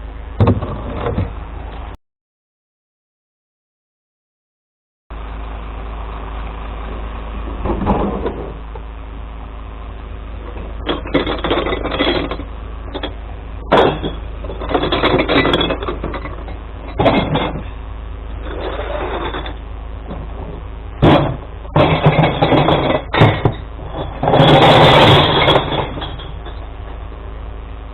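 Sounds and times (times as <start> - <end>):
truck engine running: 0.0 - 2.0, 5.1 - 27.9
glass clattering and crashing: 10.8 - 12.4, 13.0 - 17.7, 21.0 - 26.7.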